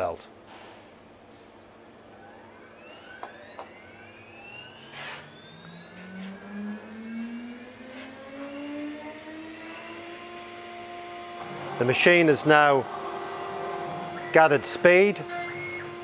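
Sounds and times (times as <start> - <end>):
spindle whine rising: 1.6 - 16.0.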